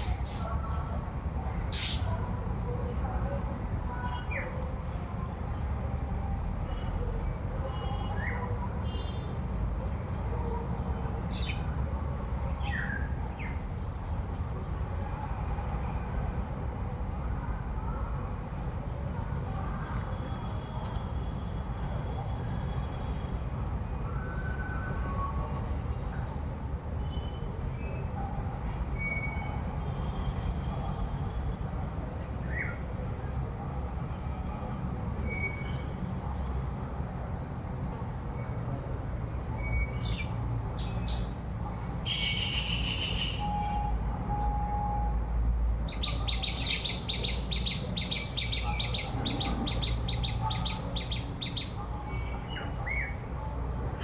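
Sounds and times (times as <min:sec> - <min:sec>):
steady high-pitched hum: 0:00.0 - 0:54.0
small birds chirping: 0:01.7 - 0:02.2, 0:45.9 - 0:53.2.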